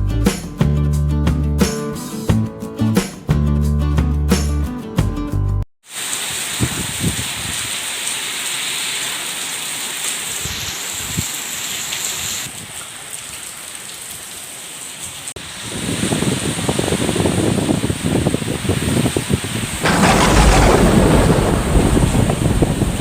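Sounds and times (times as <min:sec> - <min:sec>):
heavy rain pouring: 0:05.8 - 0:23.0
low rumble: 0:19.8 - 0:23.0.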